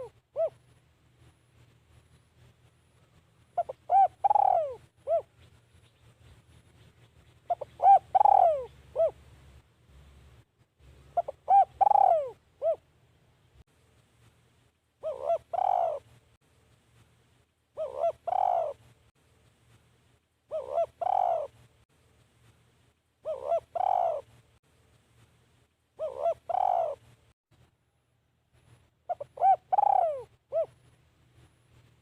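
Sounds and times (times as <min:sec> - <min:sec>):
dove cooing: 0:00.0 - 0:00.7, 0:03.6 - 0:05.5, 0:07.5 - 0:09.2, 0:11.1 - 0:12.9, 0:15.0 - 0:16.1, 0:17.8 - 0:18.9, 0:20.5 - 0:21.6, 0:23.2 - 0:24.4, 0:26.0 - 0:27.0, 0:29.1 - 0:30.8.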